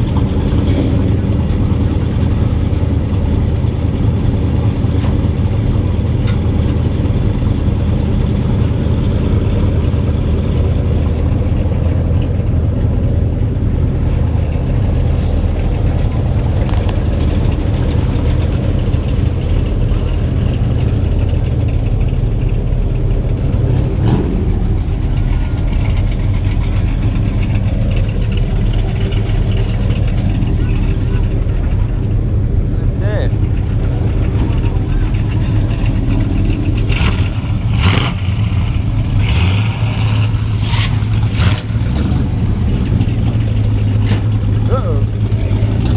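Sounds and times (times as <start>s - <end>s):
car engines rumbling: 0.0s - 45.9s.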